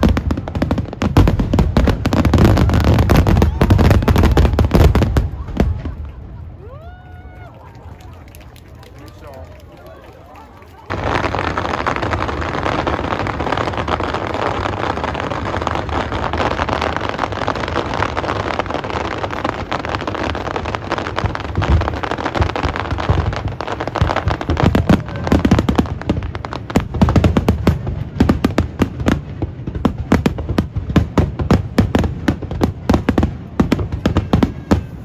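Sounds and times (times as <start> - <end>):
deep fireworks booms: 0.0 - 6.8, 10.9 - 35.0
fireworks crackling: 0.0 - 35.0.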